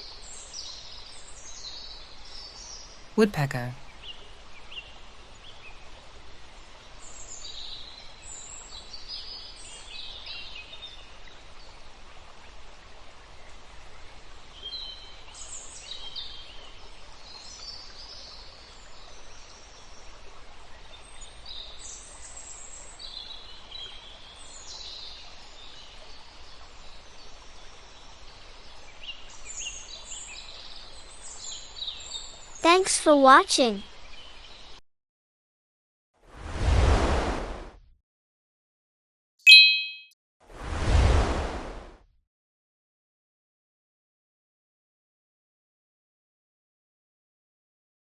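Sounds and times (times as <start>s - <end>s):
steady outdoor hiss: 0.0s - 34.8s
birds chirping: 39.5s - 40.0s.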